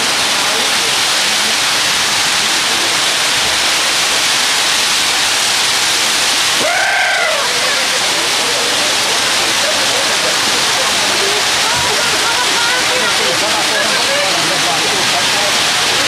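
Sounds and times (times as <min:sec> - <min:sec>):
heavy rain pouring: 0:00.0 - 0:16.0
rising-then-falling call: 0:06.6 - 0:07.8.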